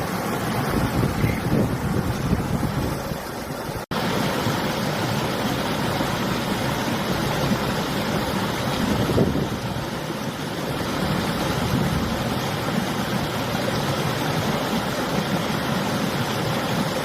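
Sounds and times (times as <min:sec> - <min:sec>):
river water rushing: 0:00.0 - 0:17.0
wind buffeting microphone: 0:00.5 - 0:03.3, 0:08.7 - 0:09.9.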